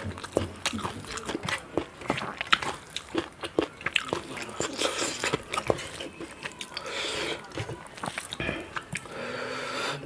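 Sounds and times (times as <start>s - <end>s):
crisp crunching and chewing: 0.0s - 9.1s.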